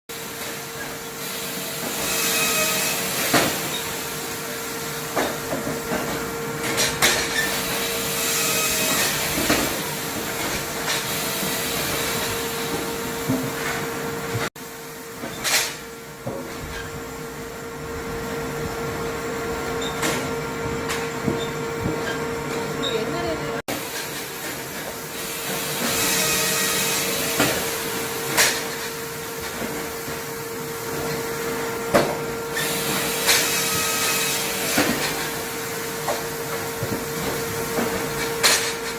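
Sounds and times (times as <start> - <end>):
steady motor hum: 1.5 - 23.7.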